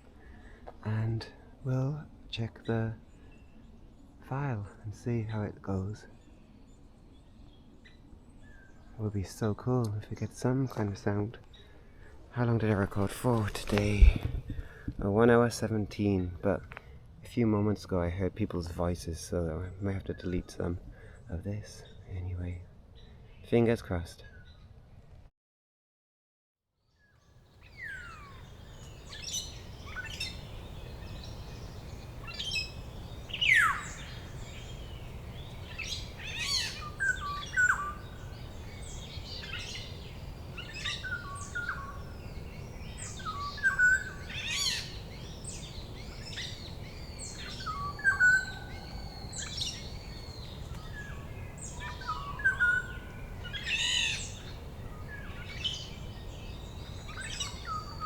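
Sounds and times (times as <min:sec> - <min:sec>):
birds chirping and whistling: 0:27.6 - 0:58.0.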